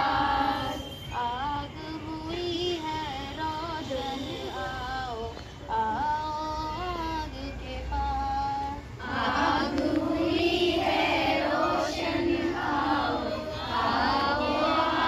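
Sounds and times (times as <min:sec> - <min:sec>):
girls singing in chorus: 0:00.0 - 0:00.9, 0:08.6 - 0:15.0.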